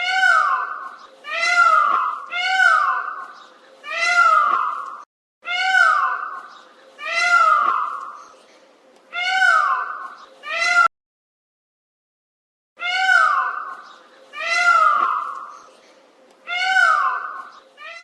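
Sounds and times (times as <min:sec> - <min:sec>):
bird mewing calls: 0:00.0 - 0:05.0, 0:05.6 - 0:08.4, 0:09.2 - 0:10.9, 0:12.9 - 0:15.9, 0:16.6 - 0:18.0.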